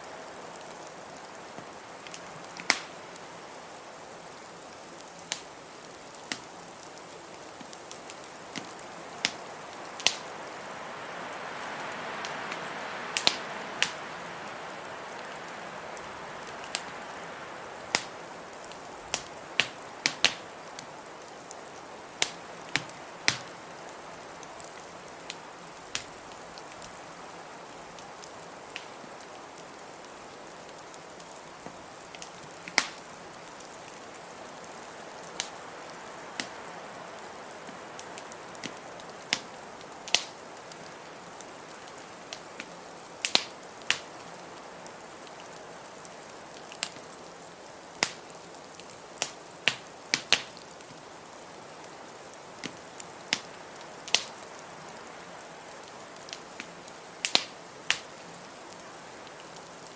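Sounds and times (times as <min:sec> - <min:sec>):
wood fire crackling and popping: 0:00.5 - 0:36.7, 0:37.5 - 0:47.2, 0:47.9 - 0:59.9
blizzard wind hissing: 0:06.7 - 0:32.0.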